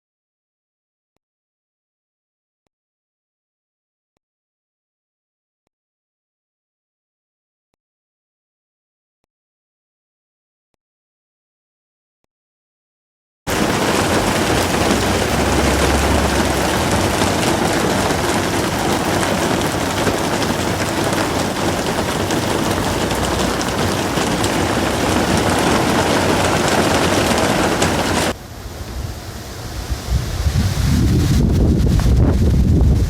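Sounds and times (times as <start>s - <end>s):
torrential rain pouring: 13.5s - 32.2s.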